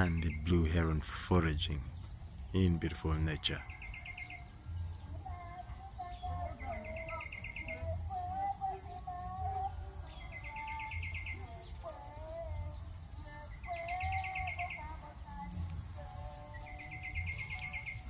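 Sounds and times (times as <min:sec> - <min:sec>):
high bird chirping: 0:00.0 - 0:18.0
bird rapid trill: 0:02.5 - 0:08.5, 0:09.2 - 0:18.0
whistled bird notes: 0:16.6 - 0:18.0.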